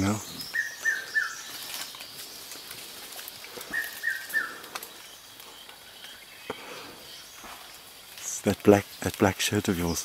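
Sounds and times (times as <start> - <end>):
forest background hiss: 0.0 - 10.0
bird whistled call: 0.4 - 1.5, 3.7 - 4.6.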